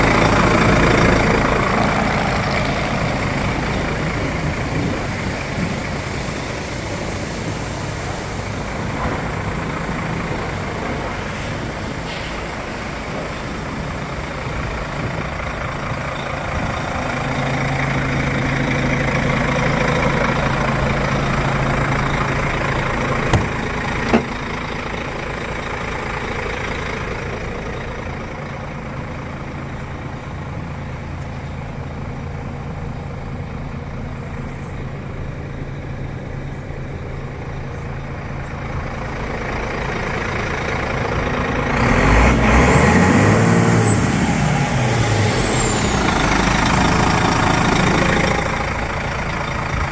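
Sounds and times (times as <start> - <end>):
diesel engine idling: 0.0 - 49.9.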